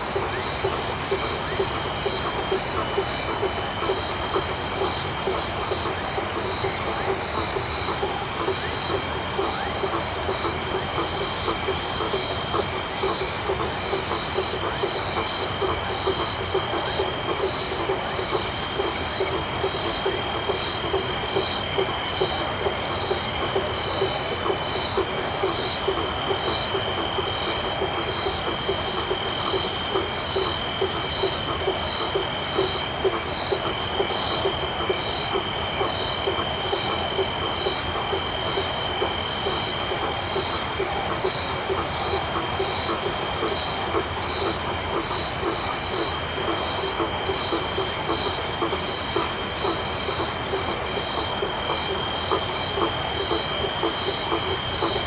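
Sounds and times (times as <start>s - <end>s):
rapid low frog calls: 0.0s - 55.0s
high insect trill: 35.9s - 42.9s
faint high chirps: 40.4s - 41.8s.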